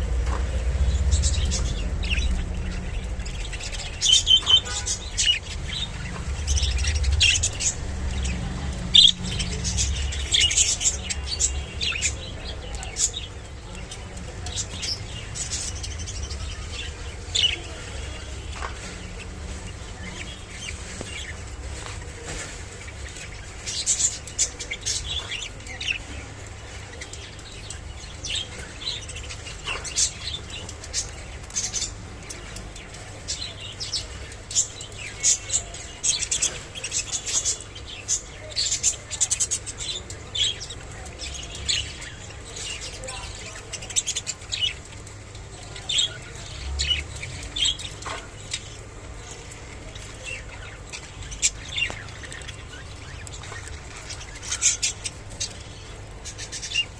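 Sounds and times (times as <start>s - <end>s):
budgerigars chirping: 0.3s - 26.1s.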